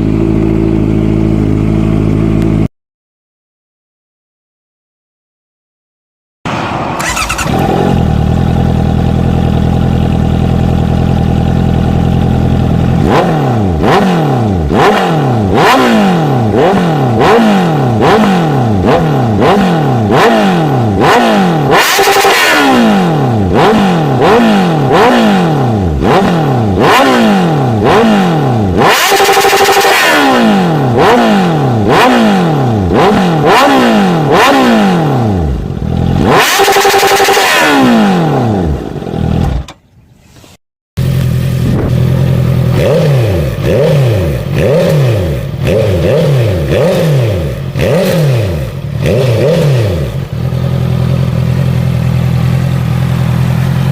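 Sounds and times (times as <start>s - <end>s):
motorcycle engine idling and revving: 0.0s - 2.7s, 6.5s - 40.0s, 41.0s - 53.9s.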